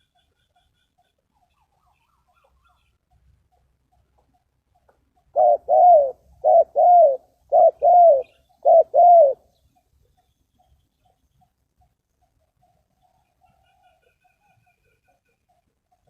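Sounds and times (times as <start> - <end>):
dove cooing: 5.3 - 9.5.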